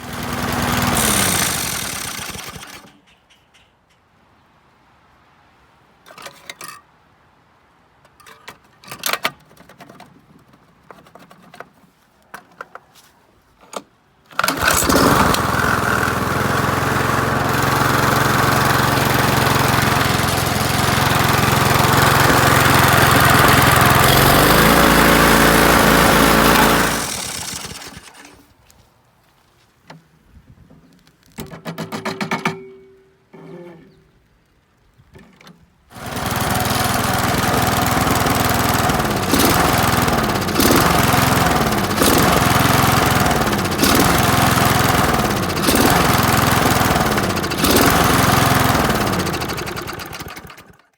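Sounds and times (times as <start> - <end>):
lawn mower engine running: 0.0 - 3.0, 14.3 - 28.5, 35.9 - 50.9.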